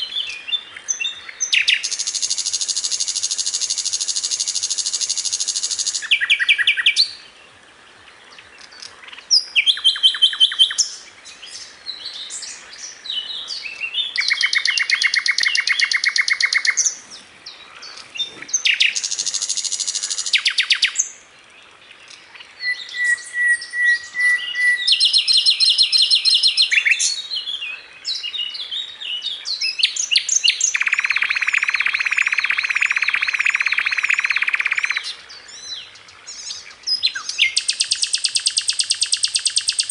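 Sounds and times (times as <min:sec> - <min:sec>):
flycatcher singing trills and rattles: 0:17.8 - 0:21.1, 0:29.5 - 0:39.9.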